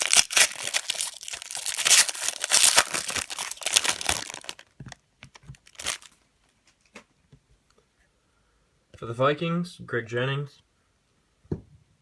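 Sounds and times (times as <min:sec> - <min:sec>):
wrapper crinkling: 0:00.0 - 0:07.0.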